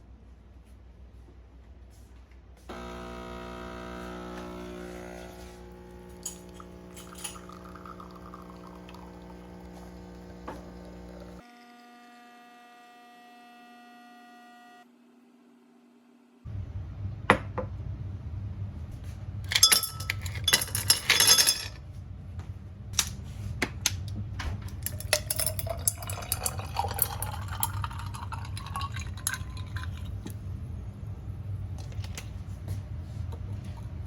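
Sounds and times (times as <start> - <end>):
steady low hum: 0.0 - 11.4, 16.5 - 34.0
liquid pouring into glass: 6.0 - 11.4, 24.8 - 30.4
glasses and dishes clinking: 6.2 - 9.8, 19.5 - 21.8, 24.9 - 30.1.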